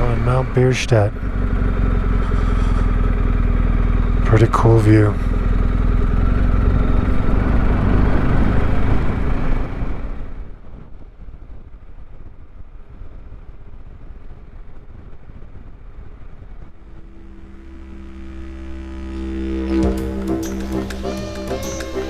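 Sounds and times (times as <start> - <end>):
music with low droning notes: 0.0 - 8.2, 16.6 - 22.0
motorcycle engine: 0.0 - 10.3, 16.6 - 22.0.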